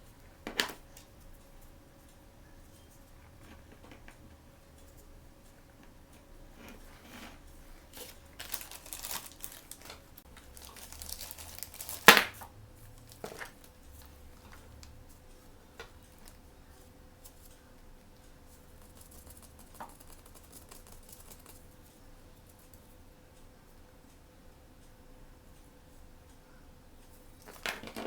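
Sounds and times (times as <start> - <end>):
packaging crinkling and tearing: 8.0 - 12.4, 13.0 - 13.6.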